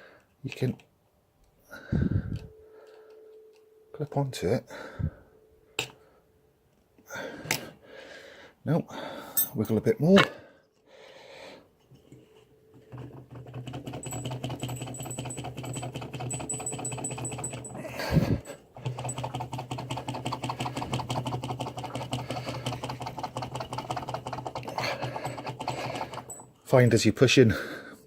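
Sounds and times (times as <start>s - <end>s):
metallic rattling and clicking: 12.8s - 26.6s.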